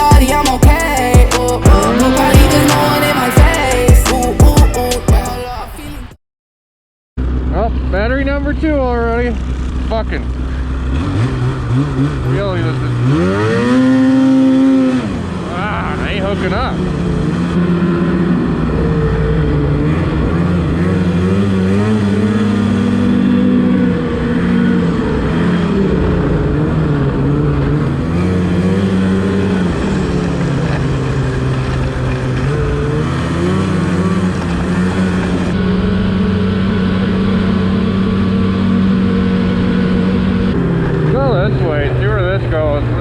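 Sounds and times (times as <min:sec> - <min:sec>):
snowmobile engine: 0:00.0 - 0:05.9, 0:09.4 - 0:43.0
track noise: 0:00.0 - 0:06.1, 0:15.1 - 0:43.0
wind: 0:07.2 - 0:43.0.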